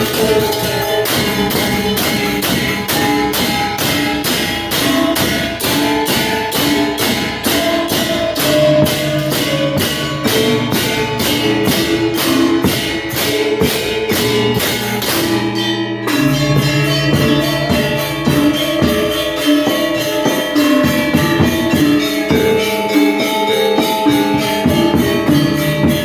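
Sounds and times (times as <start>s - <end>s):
metallophones playing melody: 0.0s - 26.0s
steady clashing beat: 0.0s - 26.0s.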